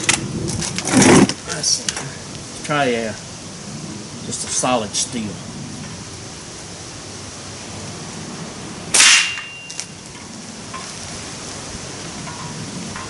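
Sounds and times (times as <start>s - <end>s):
pellet exploding loud crack: 8.9s - 9.9s.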